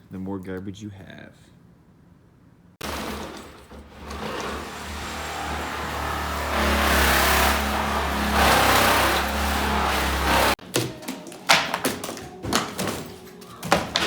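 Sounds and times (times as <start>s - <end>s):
engine humming: 2.8s - 10.6s.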